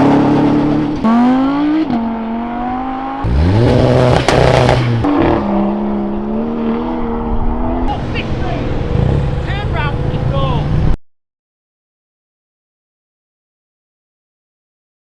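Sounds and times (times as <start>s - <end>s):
car engines revving: 0.0s - 11.0s
exhaust cracks: 3.2s - 5.2s.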